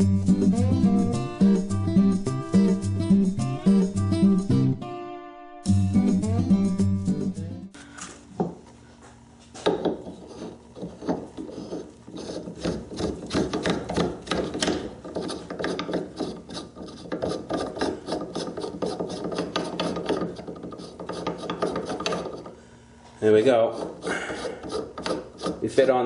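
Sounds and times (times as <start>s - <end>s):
metal threads grinding and scraping: 10.0s - 22.6s.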